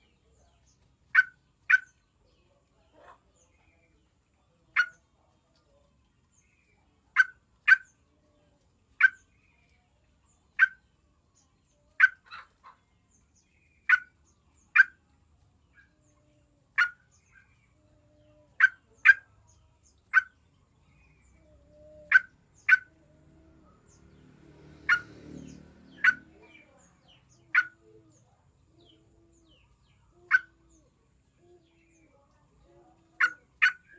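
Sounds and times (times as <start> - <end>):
bird call notes: 21.0 - 23.0, 24.8 - 30.8.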